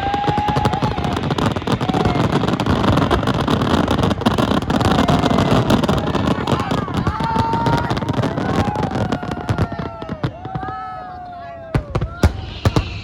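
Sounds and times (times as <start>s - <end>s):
fireworks popping and crackling: 0.0s - 13.0s
low rumble: 12.0s - 13.0s.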